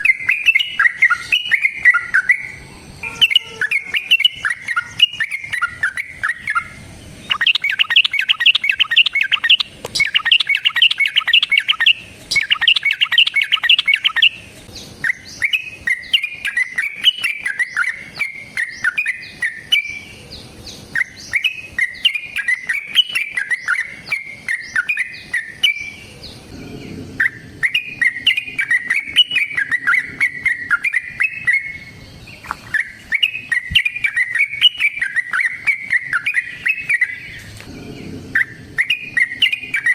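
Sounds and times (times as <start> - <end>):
bulbul song with chattering notes: 7.3 - 14.3.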